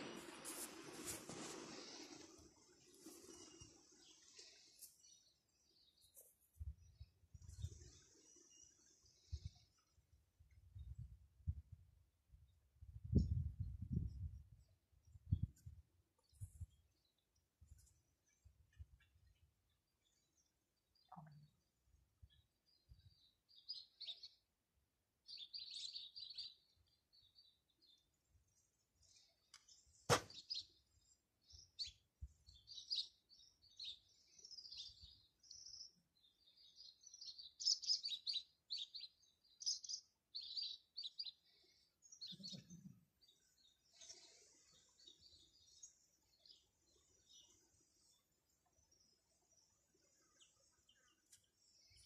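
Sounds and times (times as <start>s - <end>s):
birds chirping: 29.5s - 52.0s.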